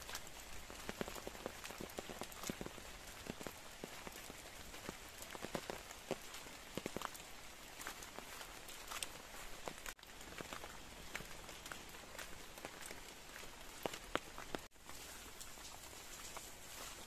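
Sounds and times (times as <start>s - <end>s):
rain hissing: 0.0s - 17.0s
raindrops tapping: 0.0s - 17.0s.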